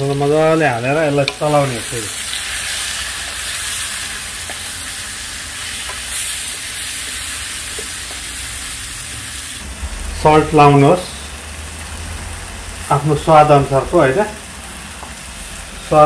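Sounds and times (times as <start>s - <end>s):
masala sizzling in hot oil: 0.0s - 16.0s.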